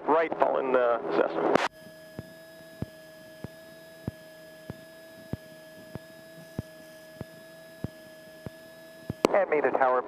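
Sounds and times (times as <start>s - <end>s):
electrical whine: 1.4s - 9.7s
sharp radio clicks: 1.5s - 9.4s.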